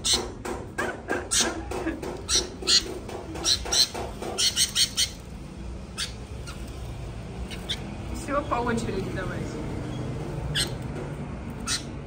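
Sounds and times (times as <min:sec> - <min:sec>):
young birds harsh calls: 0:00.0 - 0:08.2, 0:10.0 - 0:10.9, 0:11.6 - 0:12.0.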